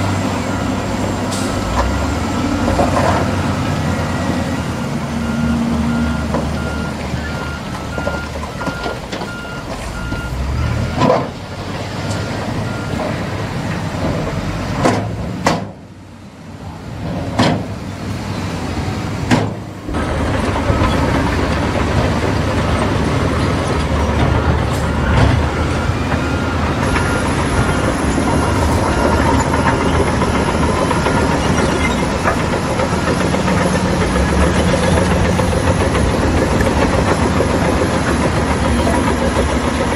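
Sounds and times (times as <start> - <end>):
construction machinery engines: 0.0 - 39.9
reversing alarm beeping: 0.3 - 11.0, 12.0 - 13.2, 24.0 - 39.9.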